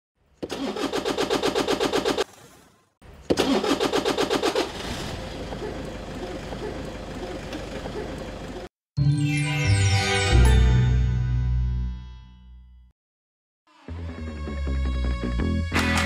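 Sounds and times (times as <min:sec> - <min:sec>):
car starter motor cranking: 0:00.4 - 0:02.4, 0:03.2 - 0:08.7
car engine idling: 0:03.6 - 0:08.7.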